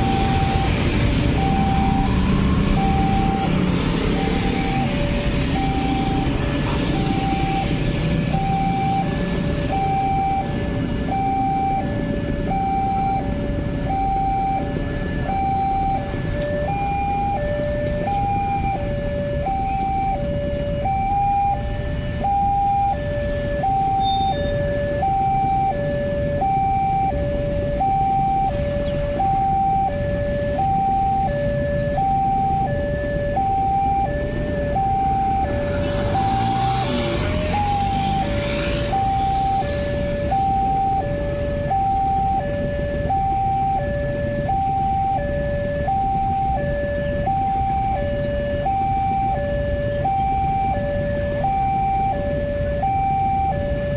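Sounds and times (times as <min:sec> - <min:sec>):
passing vehicle rush: 0:00.0 - 0:24.0, 0:24.6 - 0:53.9
level crossing two-tone alarm: 0:00.0 - 0:53.9
road traffic rumble: 0:00.0 - 0:53.9.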